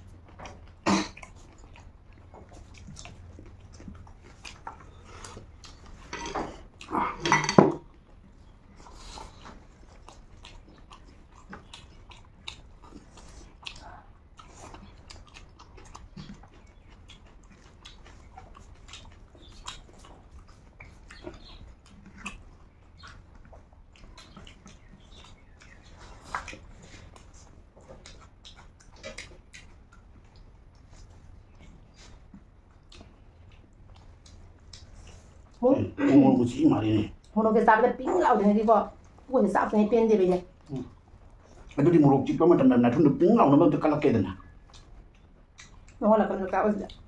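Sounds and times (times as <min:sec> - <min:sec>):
mouth and throat sounds: 0:00.0 - 0:07.6
chewing and lip smacks: 0:00.0 - 0:35.6, 0:36.5 - 0:37.4, 0:38.3 - 0:42.4, 0:43.8 - 0:47.0.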